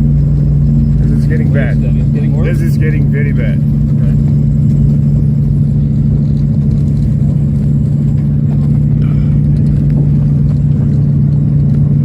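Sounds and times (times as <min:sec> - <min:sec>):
propeller engines droning: 0:00.0 - 0:12.0.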